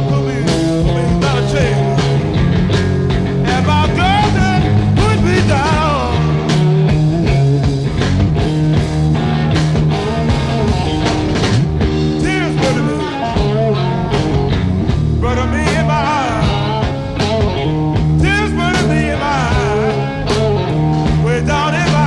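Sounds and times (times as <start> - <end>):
bass: 0.0 - 22.0
drums: 0.0 - 22.0
lead electric guitar fills: 0.0 - 22.0
person singing: 3.4 - 6.6, 12.2 - 14.2, 15.2 - 17.0, 18.2 - 22.0.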